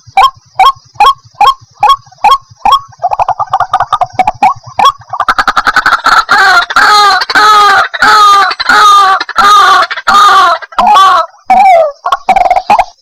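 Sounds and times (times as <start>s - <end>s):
bird harsh repeated calls: 0.0s - 13.0s.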